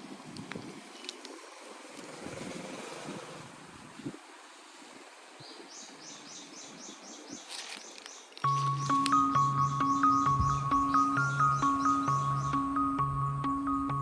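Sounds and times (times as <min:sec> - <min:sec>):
bird chirping rapidly: 0:05.4 - 0:13.0.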